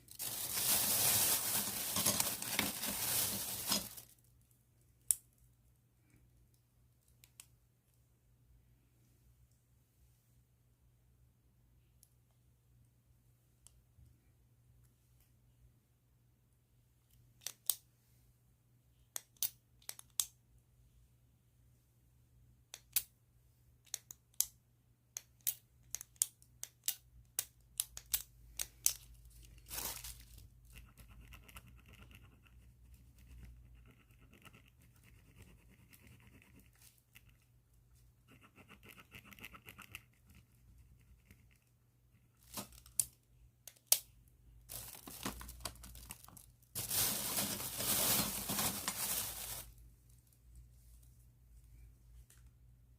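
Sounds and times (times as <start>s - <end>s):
plastic bag crinkling: 0.0s - 4.2s, 29.6s - 30.4s, 44.7s - 49.8s.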